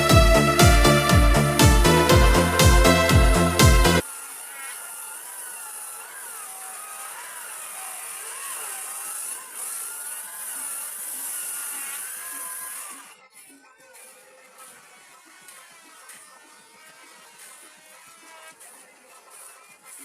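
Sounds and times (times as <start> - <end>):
electronic music with beat: 0.0 - 4.0
small motor whirring: 0.0 - 20.0.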